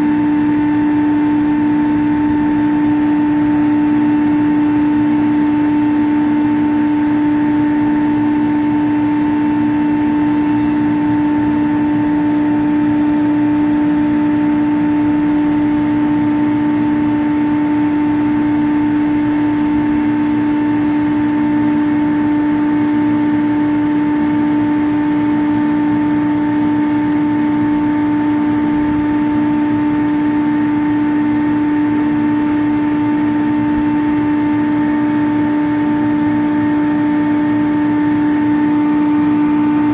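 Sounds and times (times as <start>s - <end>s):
chiller machinery hum: 0.0s - 39.9s.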